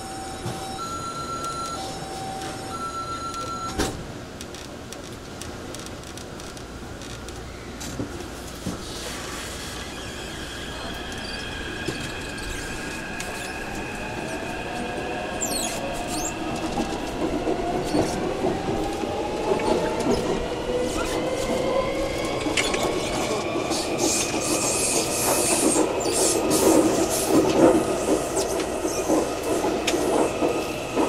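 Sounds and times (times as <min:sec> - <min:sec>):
train inverter and motors whining: 0:09.6 - 0:31.0.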